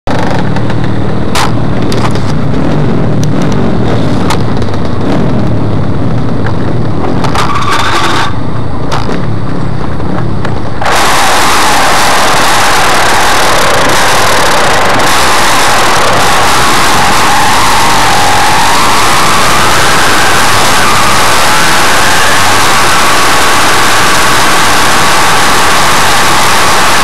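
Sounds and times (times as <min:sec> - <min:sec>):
wind buffeting microphone: 0:00.1 - 0:07.6
two-stroke motorcycle engine running: 0:10.8 - 0:27.0.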